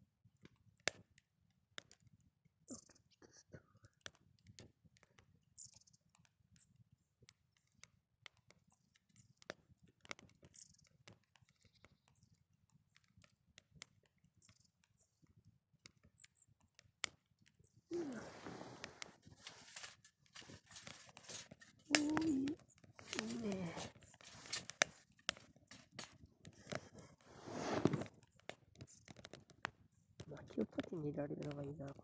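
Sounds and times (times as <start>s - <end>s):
wood fire crackling: 3.7s - 32.0s
sharp pops: 17.9s - 27.0s
rustling noise: 17.9s - 28.2s.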